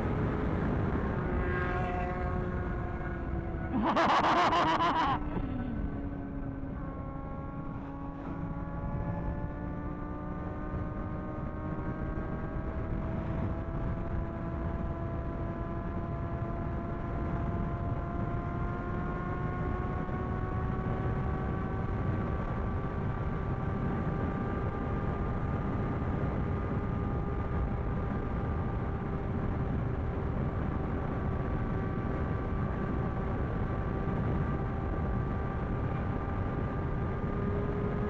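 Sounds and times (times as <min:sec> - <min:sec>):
wind rush on microphone: 0:00.0 - 0:03.9, 0:07.6 - 0:38.0
motorcycle engine cruising: 0:00.0 - 0:38.0.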